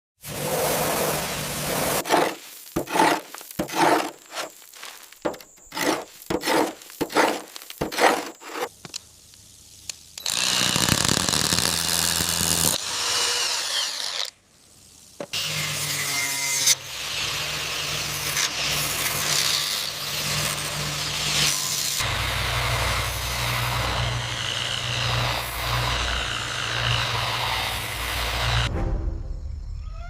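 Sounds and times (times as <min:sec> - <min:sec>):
scraping or sawing strokes: 0:00.2 - 0:08.8, 0:15.3 - 0:28.7
power tool humming: 0:10.2 - 0:14.3, 0:15.3 - 0:28.7.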